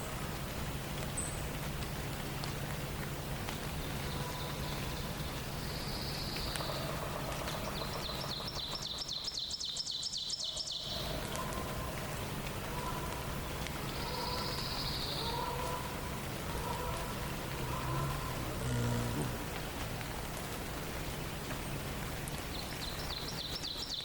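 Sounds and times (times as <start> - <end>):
songbirds dawn chorus: 0.0 - 24.0
steady background hiss: 9.0 - 23.9.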